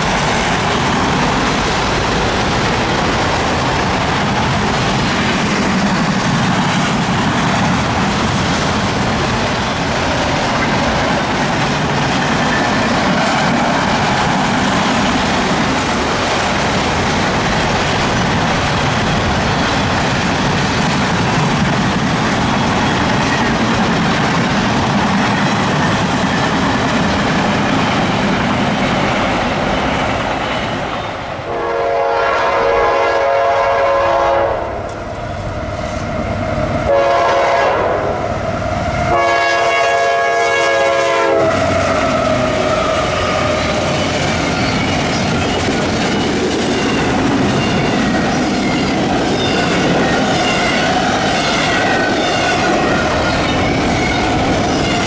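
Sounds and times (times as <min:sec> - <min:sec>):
wheels clacking over rail joints: 0:00.0 - 0:31.2, 0:41.4 - 0:55.0
freight train rumbling on rails: 0:00.0 - 0:55.0
locomotive air horn blasts: 0:31.5 - 0:34.8, 0:36.9 - 0:38.2, 0:39.1 - 0:41.6.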